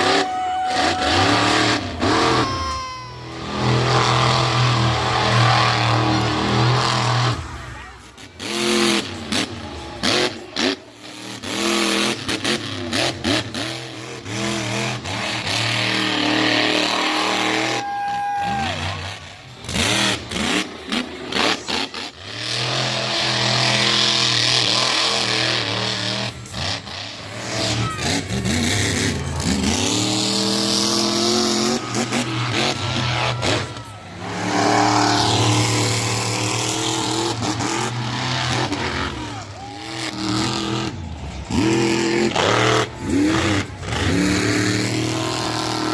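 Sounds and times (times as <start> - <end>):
truck engines revving: 0.0 - 45.9.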